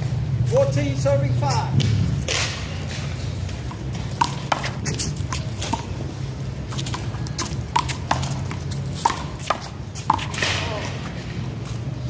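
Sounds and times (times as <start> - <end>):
handball smacking wall and ground: 1.8 - 11.2.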